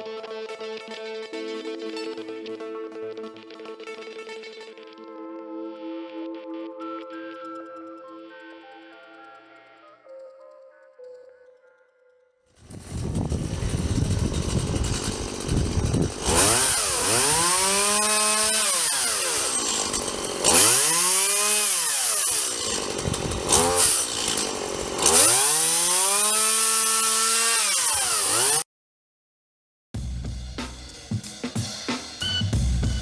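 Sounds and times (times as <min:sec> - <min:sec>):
chainsaw revving: 0:12.6 - 0:28.7.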